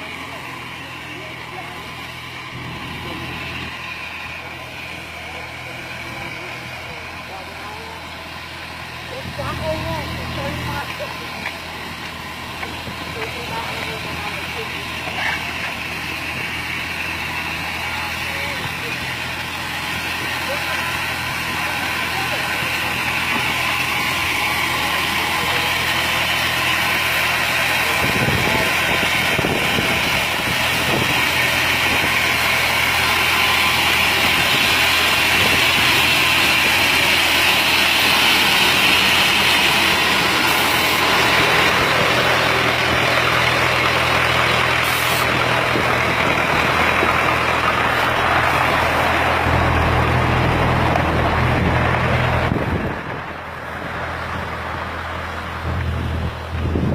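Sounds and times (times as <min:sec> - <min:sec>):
construction machinery engine running: 0:00.0 - 0:56.9.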